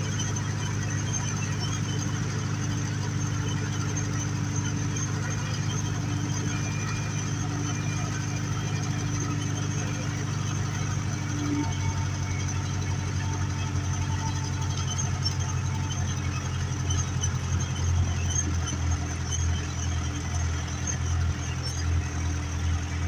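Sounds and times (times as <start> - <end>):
tractor diesel engine humming: 0.0 - 23.0.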